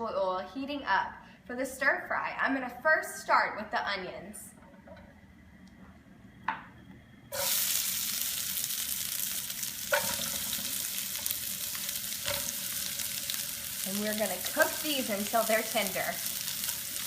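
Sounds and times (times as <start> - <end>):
onions sizzling in oil: 7.3 - 17.0.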